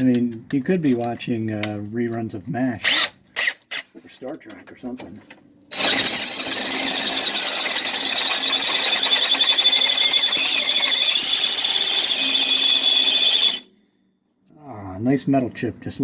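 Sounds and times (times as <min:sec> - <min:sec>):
electric drill boring metal: 0:05.7 - 0:13.7.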